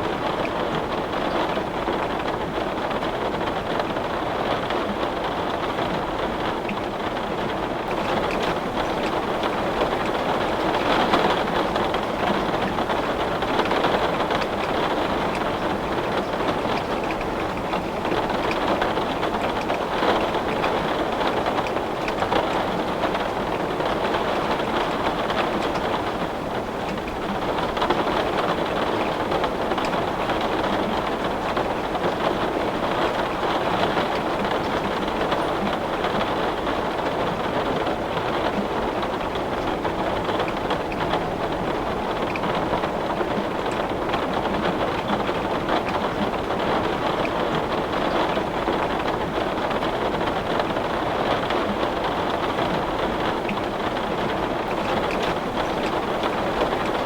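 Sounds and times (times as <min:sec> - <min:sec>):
heavy rain on window: 0:00.0 - 0:57.0.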